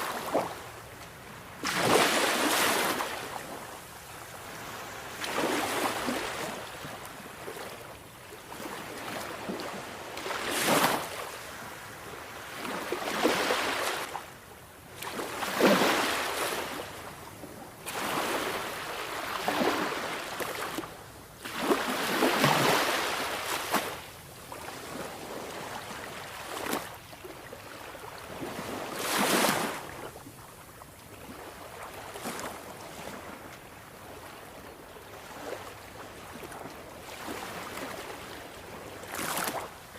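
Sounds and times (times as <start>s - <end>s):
sea waves breaking: 1.5s - 3.6s, 12.4s - 14.2s, 15.0s - 16.8s.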